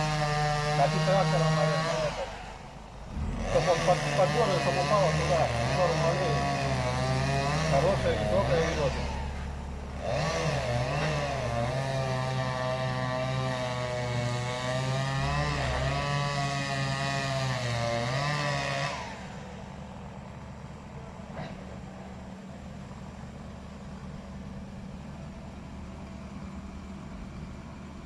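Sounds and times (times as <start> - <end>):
chainsaw cutting wood: 0.0 - 20.2.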